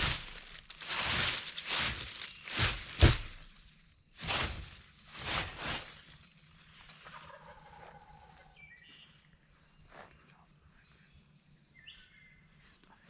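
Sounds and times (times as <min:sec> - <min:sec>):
faint turkey gobbling: 0:07.0 - 0:09.0.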